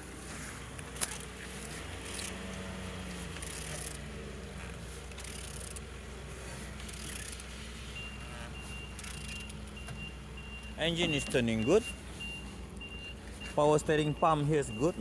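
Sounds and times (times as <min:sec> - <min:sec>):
engine scraping and mechanical noise: 0:00.0 - 0:15.0
reversing beeper: 0:08.0 - 0:15.0.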